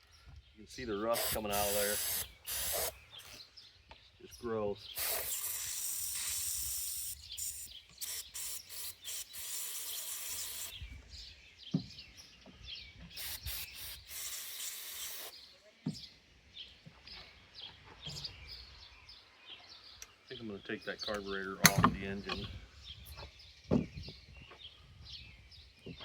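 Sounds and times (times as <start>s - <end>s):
aerosol spray hissing: 1.1s - 3.4s, 5.0s - 10.8s, 13.2s - 15.4s.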